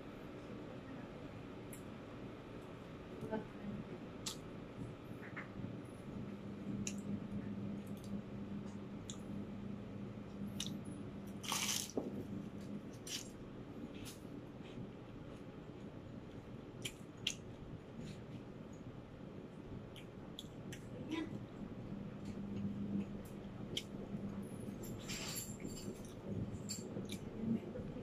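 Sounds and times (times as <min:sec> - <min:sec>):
chewing crunchy bread: 0:10.5 - 0:18.9.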